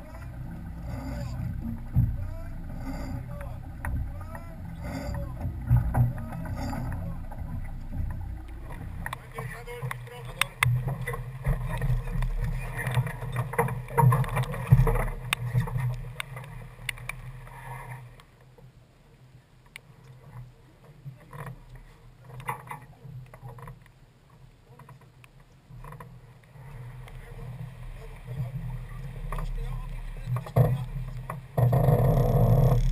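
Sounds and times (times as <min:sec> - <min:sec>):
water and wind rushing: 0:00.0 - 0:32.9
boat gear clicking and knocking: 0:30.3 - 0:32.9.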